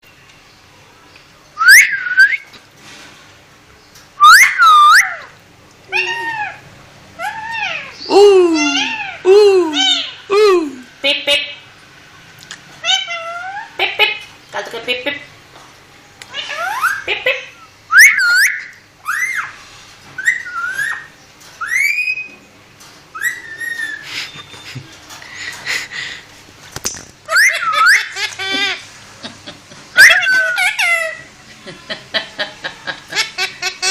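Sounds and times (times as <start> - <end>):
parrot whistling: 1.6 - 2.4, 4.2 - 5.2, 17.9 - 19.5, 20.2 - 22.3, 23.2 - 24.4, 27.3 - 28.2
parrot talking-like call: 5.9 - 6.6, 7.2 - 10.8, 30.0 - 31.3.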